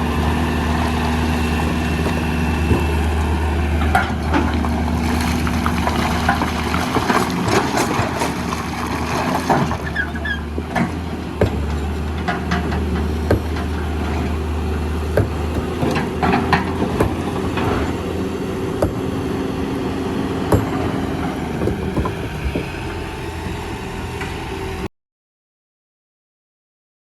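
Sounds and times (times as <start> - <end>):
heavy machinery engine hum: 0.0 - 24.9
rock knocking on steel: 15.1 - 16.0, 18.8 - 19.1, 20.5 - 20.8.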